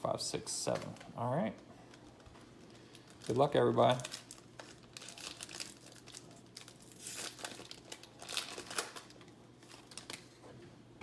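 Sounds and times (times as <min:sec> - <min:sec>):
plastic wrapper tearing and crinkling: 0:01.9 - 0:10.4.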